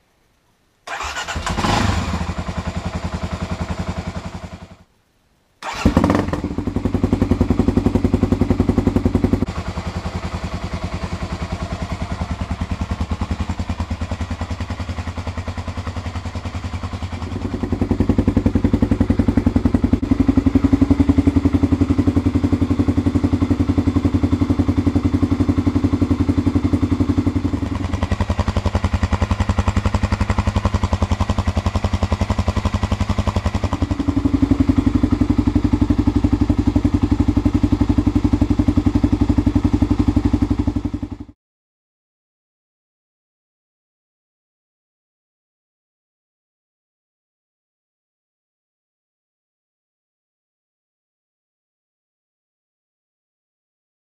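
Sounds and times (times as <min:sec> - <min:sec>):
motorcycle engine idling: 0:00.9 - 0:04.8, 0:05.6 - 0:41.4
motorcycle engine revving: 0:00.9 - 0:04.8, 0:05.6 - 0:41.4
motorcycle engine starting: 0:00.9 - 0:04.8, 0:05.6 - 0:41.4.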